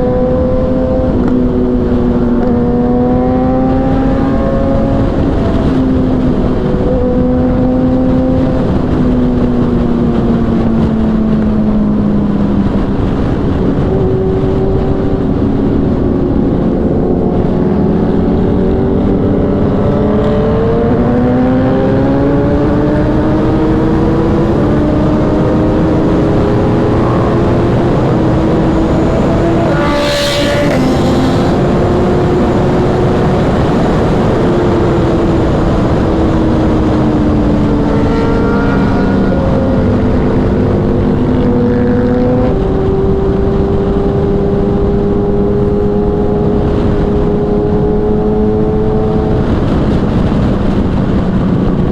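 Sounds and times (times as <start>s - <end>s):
heavy wind rush: 0.0s - 51.9s
motorcycle engine running: 0.0s - 51.9s.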